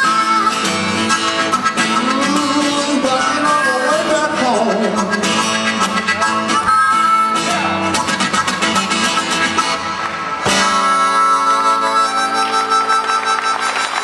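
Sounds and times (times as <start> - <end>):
acoustic guitar strumming: 0.0 - 14.0
guitar chord ringing: 5.2 - 13.5.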